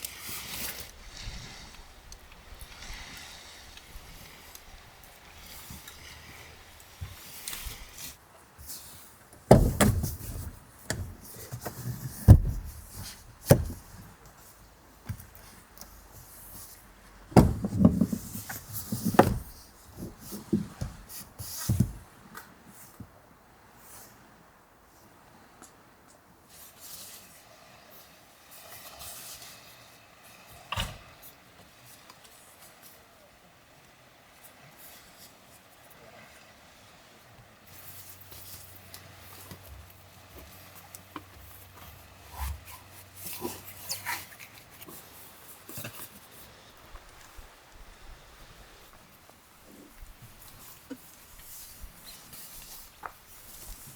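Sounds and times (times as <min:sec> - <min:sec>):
quiet rustling and handling: 0:00.0 - 0:23.2, 0:23.8 - 0:53.9
heavy thumps: 0:09.5 - 0:11.2, 0:17.4 - 0:18.2
small knocks: 0:09.5 - 0:12.8, 0:17.3 - 0:19.6.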